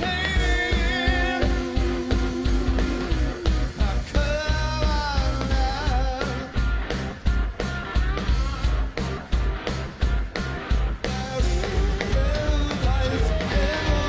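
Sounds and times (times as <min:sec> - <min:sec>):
drum hits: 0:00.0 - 0:05.7
person singing: 0:00.0 - 0:06.5, 0:11.2 - 0:14.0
rock band playing: 0:00.0 - 0:14.0.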